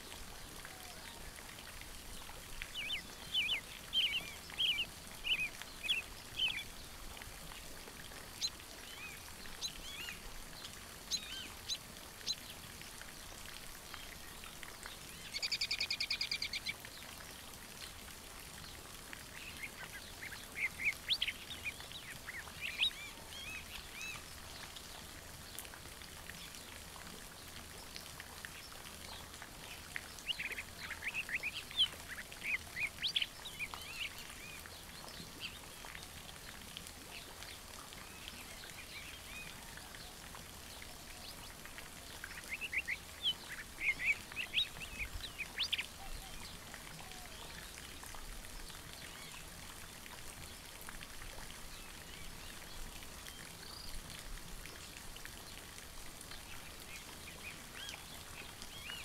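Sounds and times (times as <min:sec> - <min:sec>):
small birds chirping: 0:02.6 - 0:07.0, 0:08.3 - 0:17.3, 0:18.6 - 0:24.7, 0:27.4 - 0:36.1, 0:40.7 - 0:47.7.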